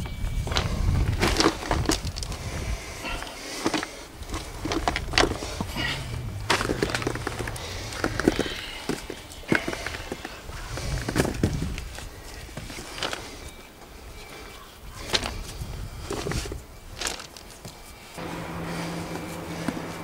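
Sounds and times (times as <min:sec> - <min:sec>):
faint low engine hum: 0:02.6 - 0:11.1, 0:17.9 - 0:20.0.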